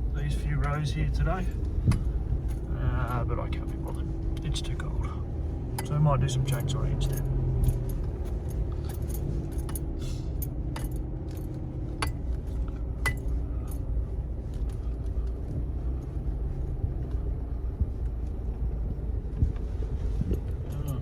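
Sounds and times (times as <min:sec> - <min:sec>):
vehicle engine and road rumble: 0:00.0 - 0:21.0
keys jangling: 0:06.6 - 0:11.5.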